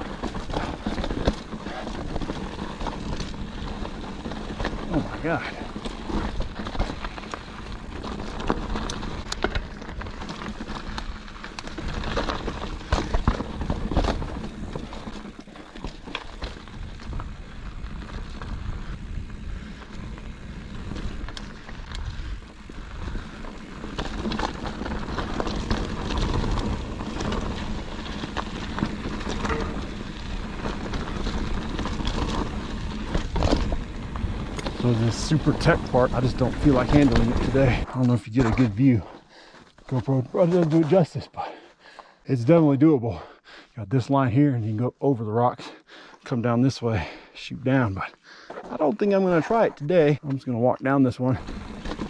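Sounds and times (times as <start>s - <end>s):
bike knocking and rattling: 0.0s - 39.1s, 51.4s - 52.0s
bike tyres crunching over rock: 0.0s - 42.2s, 48.4s - 52.0s.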